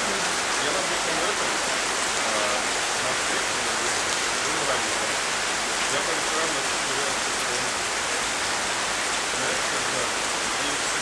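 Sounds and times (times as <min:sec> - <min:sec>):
faint voices: 0:00.0 - 0:05.2, 0:05.9 - 0:07.8, 0:09.3 - 0:11.0
rain falling steadily: 0:00.0 - 0:11.0.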